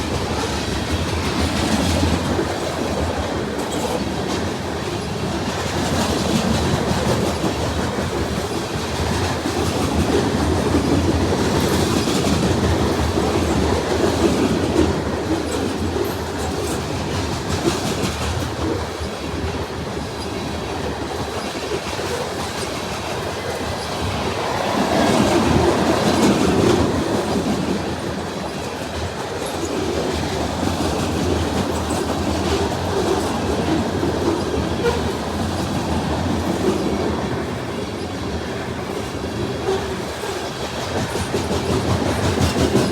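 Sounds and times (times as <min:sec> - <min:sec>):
freight train cars rolling past: 0:00.0 - 0:42.9
wheels clacking over rail joints: 0:39.0 - 0:42.9.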